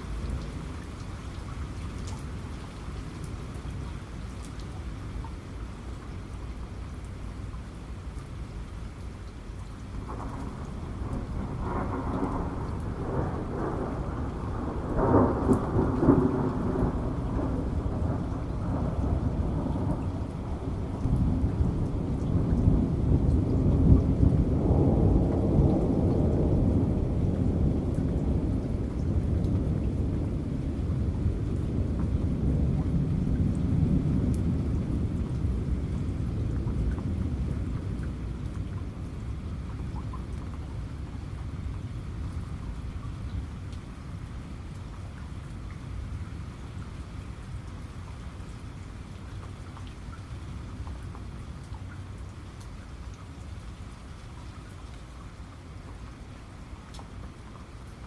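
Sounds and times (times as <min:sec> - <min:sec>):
heavy rain: 0:00.0 - 0:58.0
thunder rumbling: 0:10.0 - 0:42.6.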